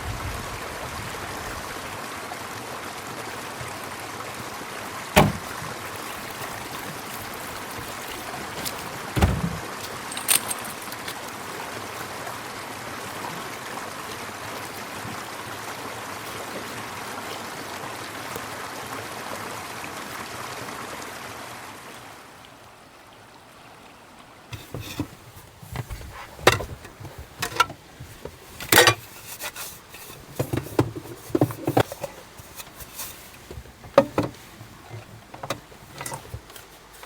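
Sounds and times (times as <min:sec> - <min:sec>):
river water rushing: 0:00.5 - 0:37.0
loud knocks: 0:05.2 - 0:05.8, 0:07.3 - 0:09.7.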